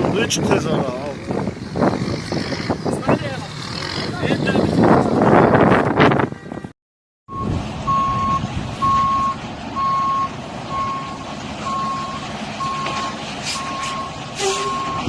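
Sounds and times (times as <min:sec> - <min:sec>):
engine: 0:00.0 - 0:06.0, 0:07.3 - 0:15.0
truck reversing alarm beeping: 0:07.3 - 0:15.0.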